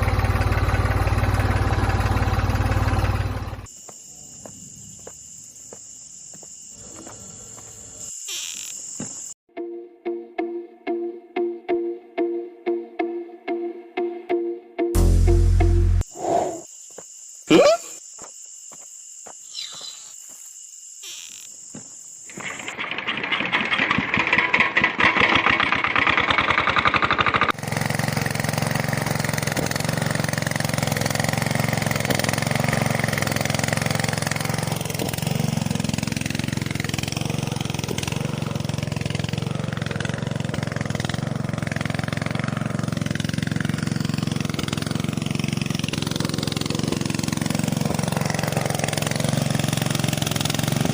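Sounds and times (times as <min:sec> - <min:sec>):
low engine hum: 0:00.0 - 0:03.7
small engine rattling: 0:00.0 - 0:03.7, 0:22.3 - 0:50.9.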